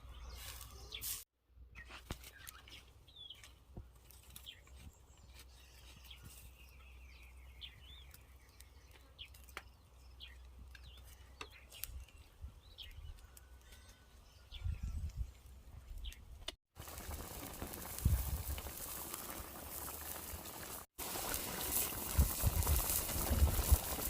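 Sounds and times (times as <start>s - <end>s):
bird chirps: 0.0s - 3.5s, 4.4s - 16.3s.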